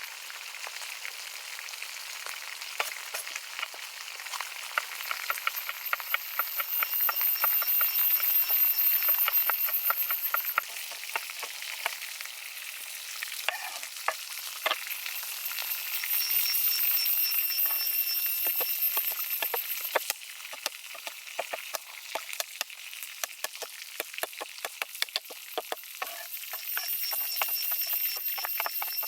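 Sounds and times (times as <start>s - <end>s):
food sizzling in hot oil: 0.0s - 29.0s
oil popping and crackling: 0.0s - 29.0s.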